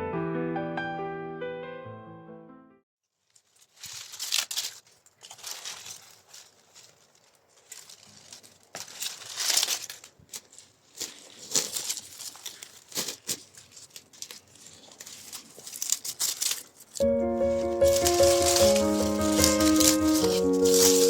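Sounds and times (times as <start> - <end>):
soft piano music: 0.0 - 2.8, 17.0 - 21.0
crinkling and rustling: 3.0 - 21.0.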